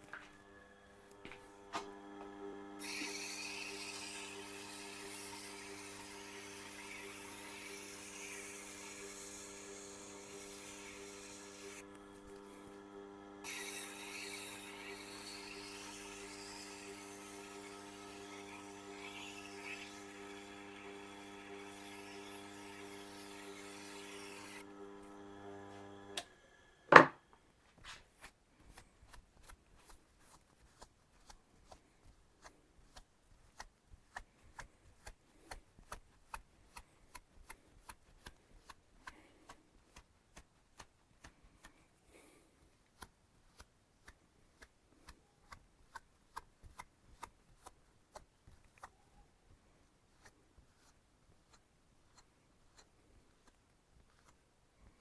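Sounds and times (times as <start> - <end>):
sharpening machine motor hum: 0.0 - 27.2.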